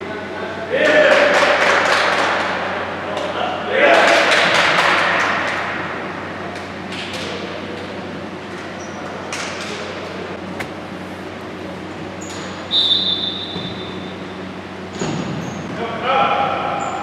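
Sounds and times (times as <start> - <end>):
ball strikes: 10.5 - 10.9.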